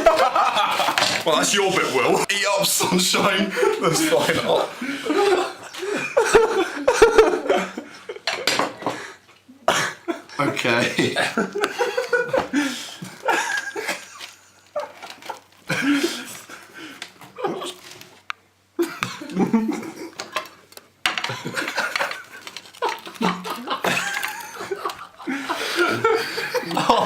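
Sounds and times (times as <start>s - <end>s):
plates and cutlery clinking: 0.0s - 1.4s, 3.2s - 9.1s, 18.9s - 25.1s
people laughing: 0.0s - 9.0s, 9.8s - 17.8s, 18.8s - 20.3s, 21.2s - 27.0s.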